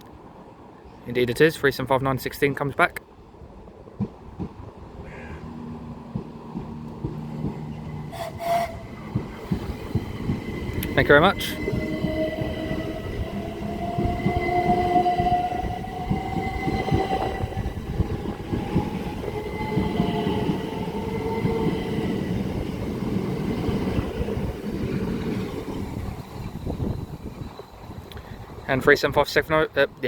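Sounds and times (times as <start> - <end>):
train wheels rumbling on rail: 3.4 - 30.0
train motor whine: 5.3 - 27.2.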